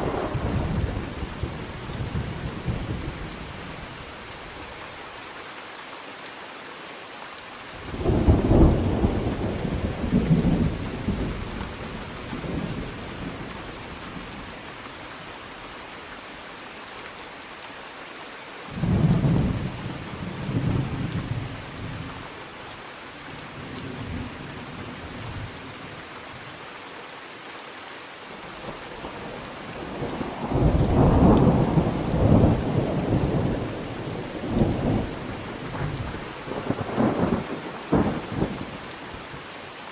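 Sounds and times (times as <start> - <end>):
heavy rain hissing: 0.0 - 26.8, 28.2 - 39.9
rolling thunder: 8.0 - 13.4, 29.7 - 38.6.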